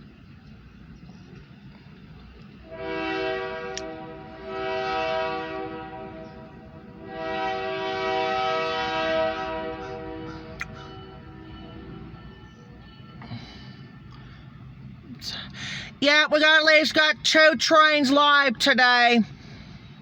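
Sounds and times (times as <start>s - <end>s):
locomotive air horn blasts: 2.6s - 12.1s.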